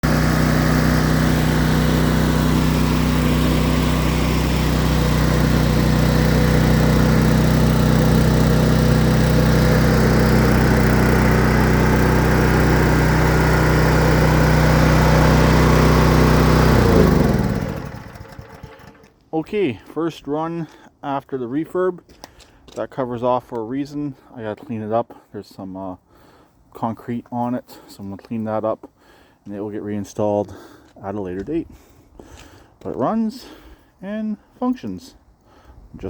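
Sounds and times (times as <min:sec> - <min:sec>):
generator winding down: 0:00.0 - 0:19.1
generator engine running: 0:00.0 - 0:19.2.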